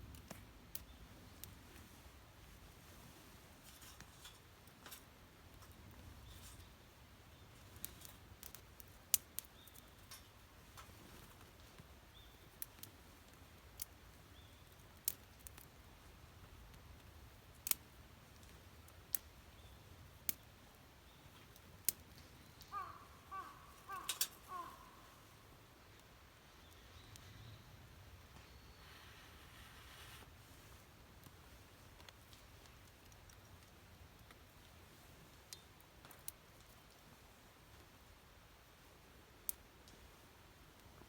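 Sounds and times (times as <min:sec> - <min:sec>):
campfire crackling and popping: 0:00.0 - 0:01.9, 0:07.3 - 0:22.7, 0:31.0 - 0:38.0.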